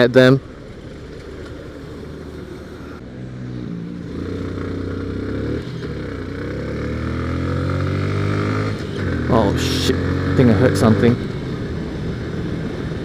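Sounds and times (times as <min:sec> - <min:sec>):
motorcycle engine accelerating: 0:00.4 - 0:13.0.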